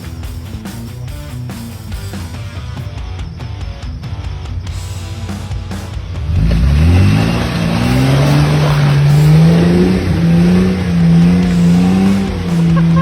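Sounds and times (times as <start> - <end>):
engine revving: 3.9 - 13.0.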